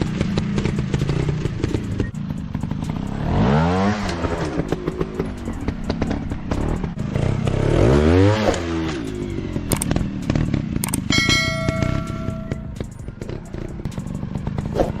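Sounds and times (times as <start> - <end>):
motorcycle engine revving: 0.0 - 15.0
bell-like chime: 11.1 - 12.7.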